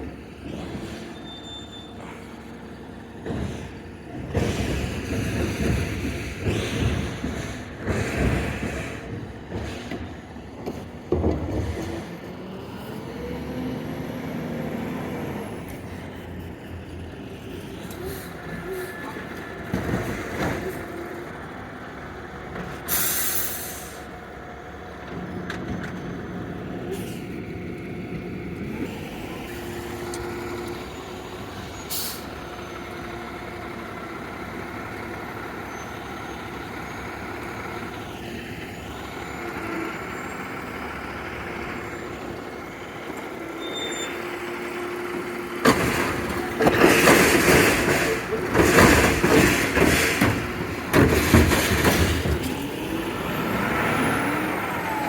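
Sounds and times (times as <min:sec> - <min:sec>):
garbage truck engine running: 0:00.0 - 0:55.0.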